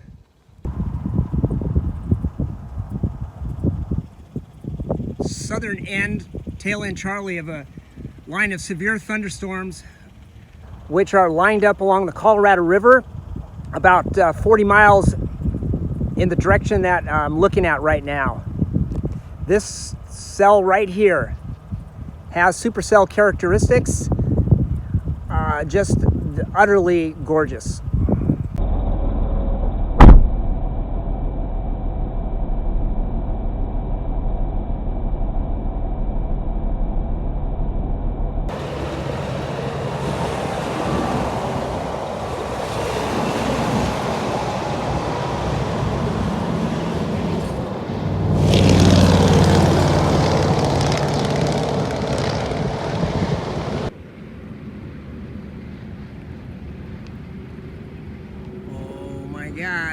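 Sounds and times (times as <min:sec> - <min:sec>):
highway traffic hum: 0:00.0 - 0:28.6, 0:38.5 - 0:59.9
loud sharp knock: 0:30.0 - 0:30.4
heavy vehicle passing: 0:38.5 - 0:54.0.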